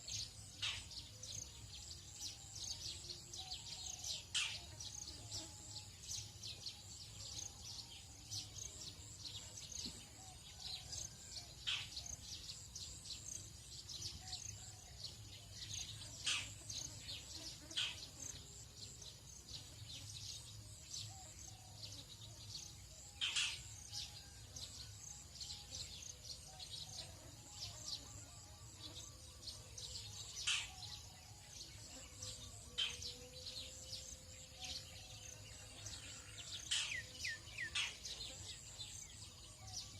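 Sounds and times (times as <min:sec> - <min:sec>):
birds chirping and calling: 0:02.5 - 0:05.0, 0:21.0 - 0:25.2, 0:28.9 - 0:31.2, 0:31.8 - 0:39.9
high insect buzz: 0:15.8 - 0:22.6, 0:27.2 - 0:35.7.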